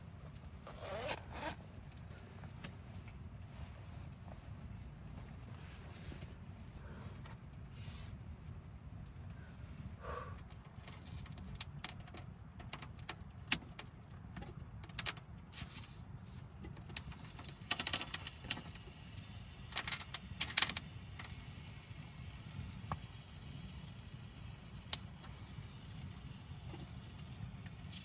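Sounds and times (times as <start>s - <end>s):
wood crackling and popping: 0.0s - 0.8s, 1.6s - 28.0s
low rumble of stove: 0.0s - 28.0s.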